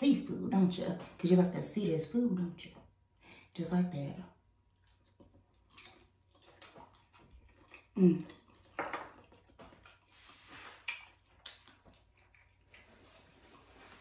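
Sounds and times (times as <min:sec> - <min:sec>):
wet chewing: 0:04.6 - 0:14.0
person humming: 0:08.0 - 0:08.2.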